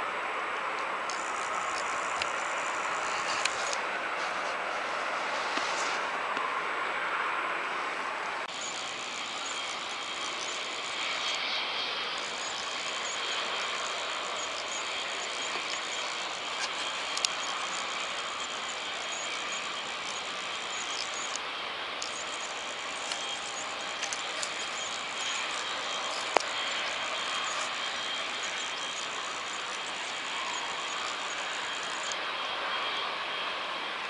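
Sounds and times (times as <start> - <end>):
jet engine hiss and whine: 0.0 - 34.0
sharp clicks: 1.1 - 2.5, 12.2 - 21.4, 22.0 - 32.2.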